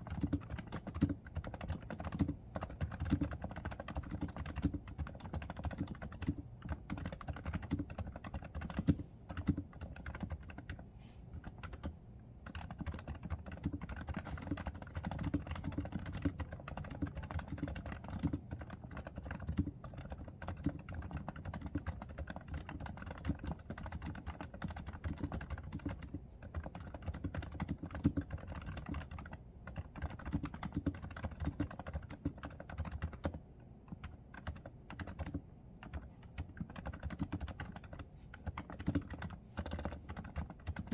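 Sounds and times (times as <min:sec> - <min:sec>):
muted keyboard typing: 0:00.0 - 0:40.9.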